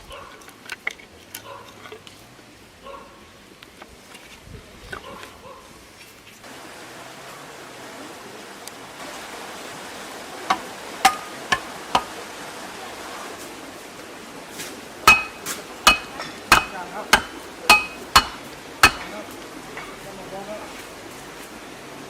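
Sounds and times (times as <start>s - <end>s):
hammer blows with metallic ring: 10.5s - 12.1s, 15.1s - 19.1s.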